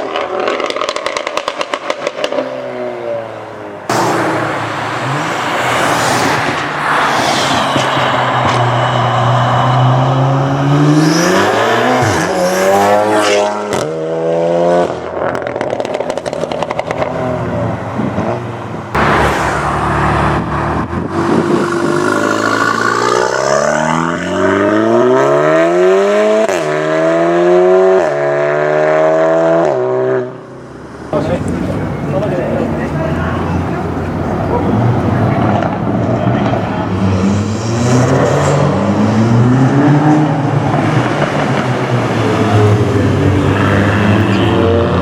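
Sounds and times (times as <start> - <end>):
exhaust crackles and pops: 0.0 - 2.5
car engine accelerating hard: 0.0 - 45.0.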